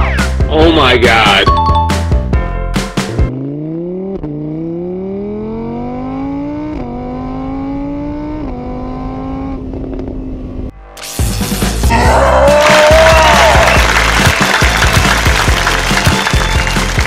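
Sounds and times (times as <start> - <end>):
car engine accelerating: 3.0 - 10.7.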